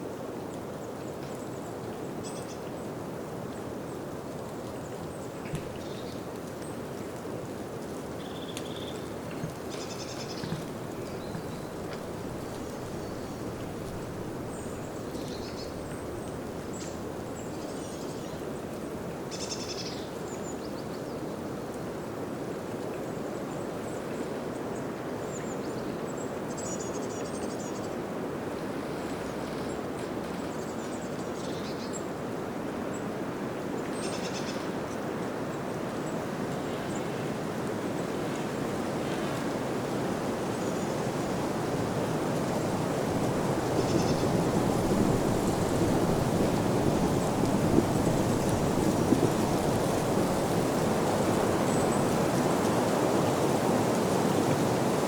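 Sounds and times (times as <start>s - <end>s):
wind through trees: 0.0s - 55.0s
small birds chirping: 8.2s - 20.8s.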